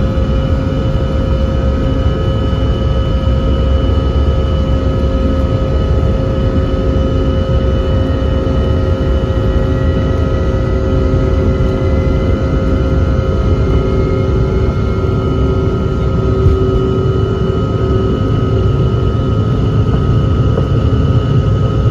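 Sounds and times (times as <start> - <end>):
jet engines droning: 0.0 - 21.9.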